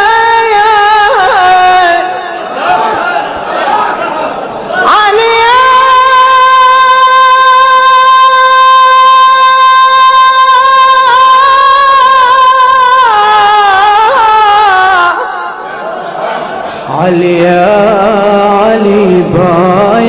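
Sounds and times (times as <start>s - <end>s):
man singing a high note: 4.8s - 15.5s.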